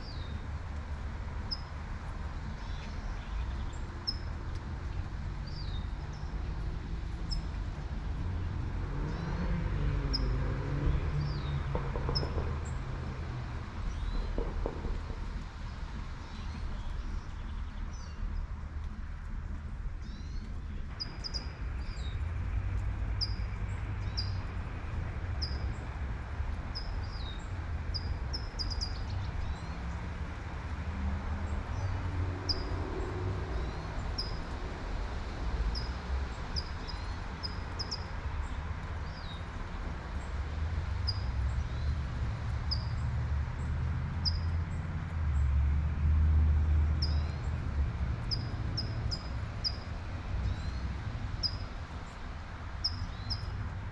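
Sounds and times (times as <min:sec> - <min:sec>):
low traffic rumble: 0:00.0 - 0:53.9
car passing: 0:06.6 - 0:16.1, 0:29.2 - 0:53.9.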